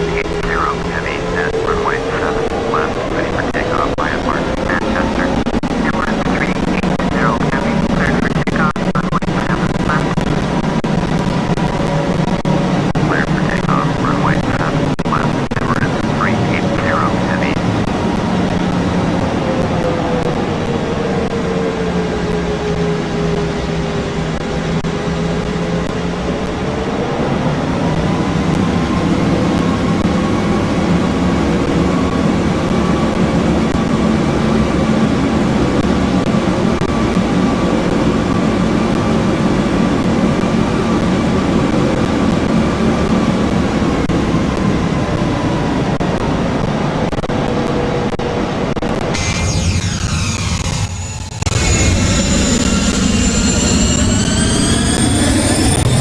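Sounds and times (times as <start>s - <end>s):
high whine: 0.0s - 56.0s
jet engines running: 0.0s - 56.0s
low hum: 49.0s - 56.0s.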